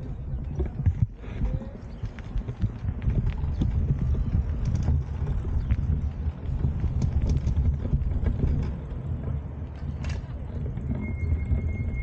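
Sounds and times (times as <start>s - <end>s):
wind buffeting microphone: 0.0s - 12.0s
light clicks and rattles: 2.0s - 10.8s.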